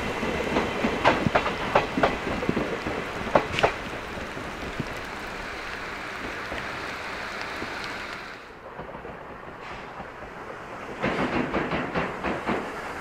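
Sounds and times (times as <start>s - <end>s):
train rushing rumble: 0.0s - 13.0s
train wheels clacking over rail joints: 0.0s - 13.0s.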